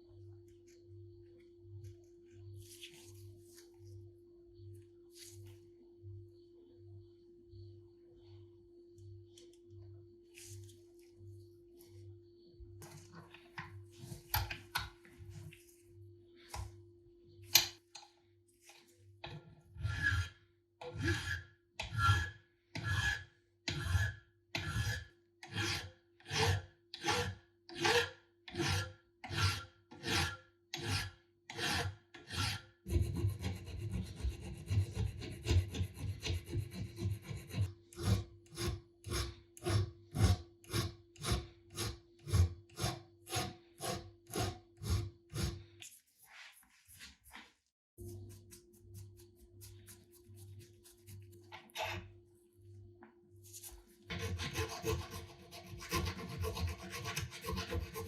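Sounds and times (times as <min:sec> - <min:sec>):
abrasive rasping on metal: 0:19.7 - 0:45.7, 0:54.1 - 0:58.0.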